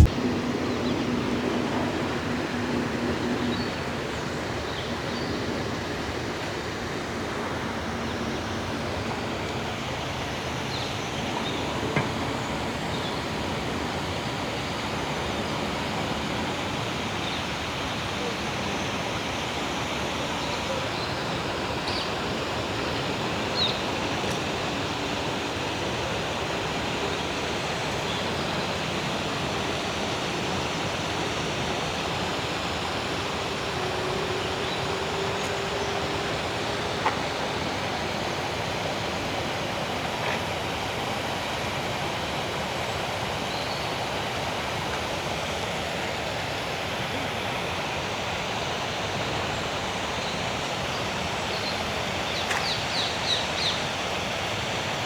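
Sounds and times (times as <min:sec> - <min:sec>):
rushing water: 0:00.0 - 0:55.0
faint clicks: 0:52.4 - 0:52.8.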